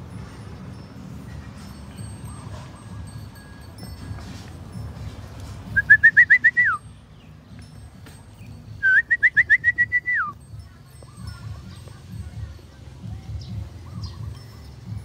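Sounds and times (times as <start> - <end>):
whistled bird calls: 5.7 - 7.3, 8.4 - 10.4, 13.4 - 14.4.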